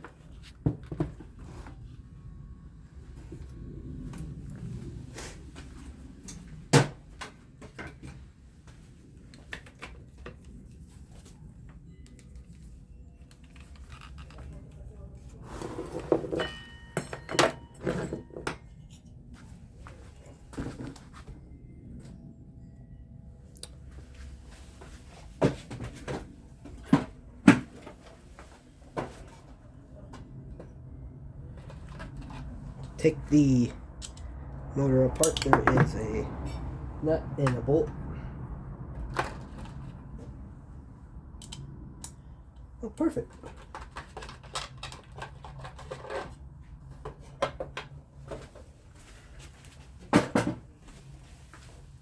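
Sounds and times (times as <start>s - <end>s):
fan parts knocking and clunking: 31.5s - 36.6s
tools clicking and tapping: 34.0s - 34.3s, 35.2s - 36.0s.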